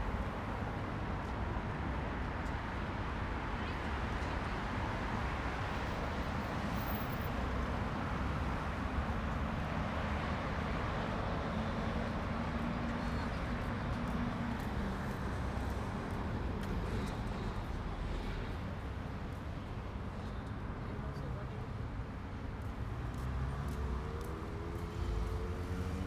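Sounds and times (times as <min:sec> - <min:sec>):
road traffic rumble: 0:06.6 - 0:26.0.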